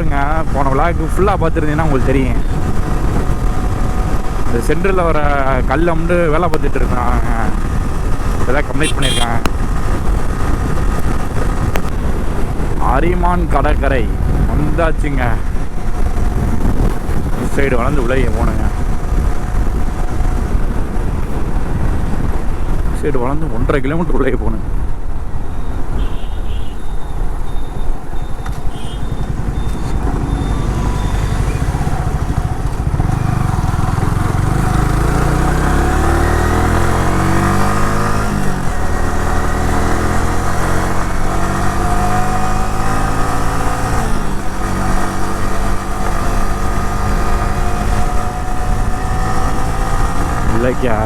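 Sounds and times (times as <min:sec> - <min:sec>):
wind rumbling on microphone: 0:00.0 - 0:51.0
motorcycle engine running: 0:01.6 - 0:12.8, 0:28.2 - 0:51.0.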